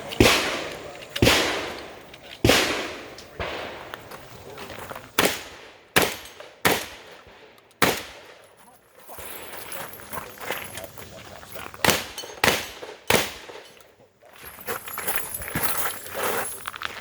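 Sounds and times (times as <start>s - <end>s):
shotgun shots echoing: 0.0s - 4.3s, 5.1s - 8.4s, 11.8s - 13.8s.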